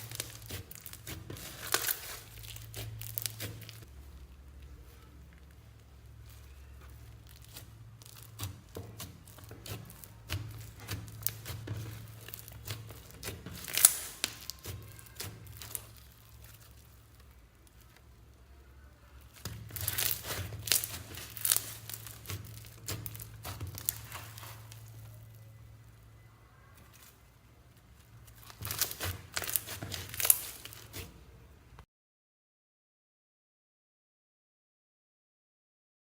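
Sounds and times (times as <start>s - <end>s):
slime clicking and crackling: 0.0s - 31.4s
slime snapping: 7.4s - 16.7s, 19.3s - 24.9s, 28.4s - 31.0s.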